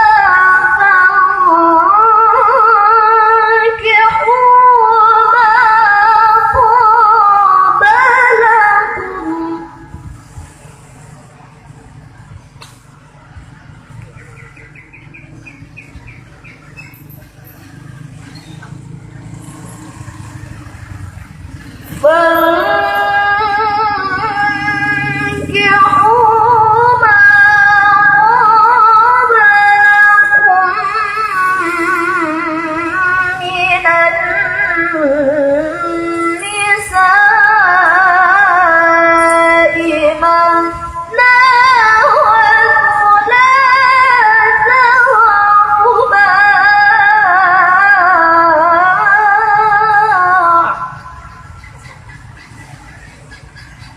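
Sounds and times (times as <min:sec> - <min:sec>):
girl reciting melodically: 0:21.9 - 0:51.0.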